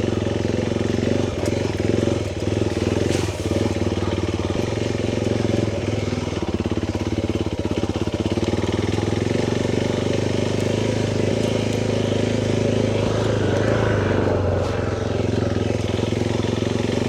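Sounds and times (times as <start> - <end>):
motorcycle engine running: 0.0 - 17.0
rush of noise: 12.2 - 17.0.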